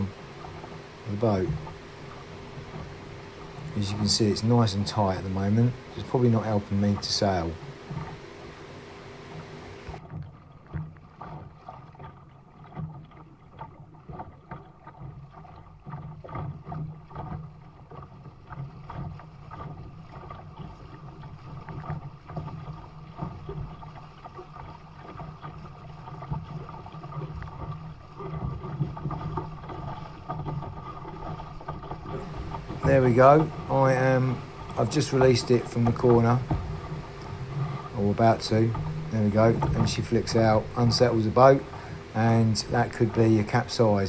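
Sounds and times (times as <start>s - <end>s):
water splashing against hull: 0.0s - 44.0s
low muffled rumble: 32.1s - 44.0s.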